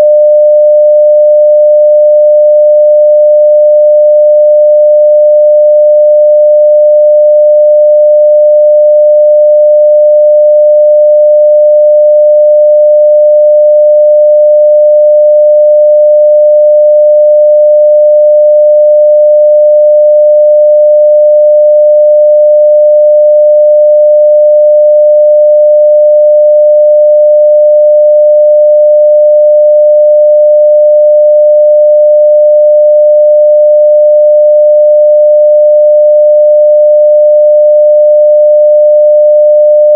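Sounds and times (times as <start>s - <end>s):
loud sine-wave test tone: 0.0s - 39.9s.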